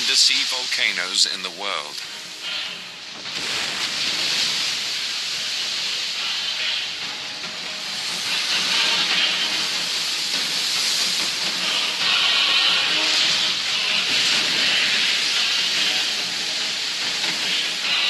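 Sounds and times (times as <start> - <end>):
rushing hiss of steam and spray: 0.0 - 18.0.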